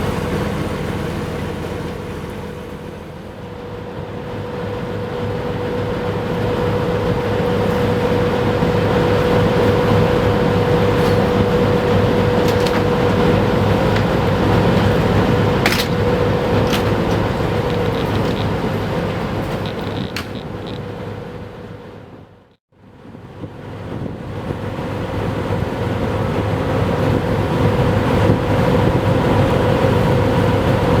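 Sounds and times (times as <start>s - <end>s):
passing engine drone: 0.0s - 19.8s
sharp clicks: 15.7s - 20.9s.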